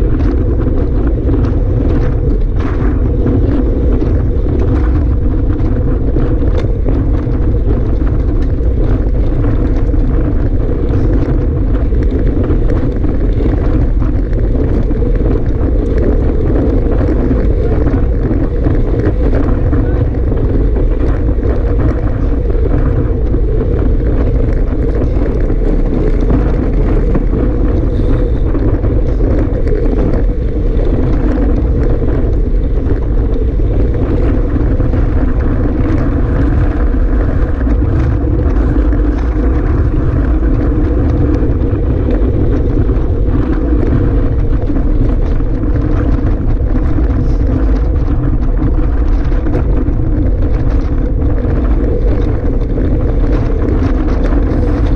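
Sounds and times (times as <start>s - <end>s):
steady low drone: 0.0s - 54.9s
wind buffeting microphone: 0.0s - 54.9s.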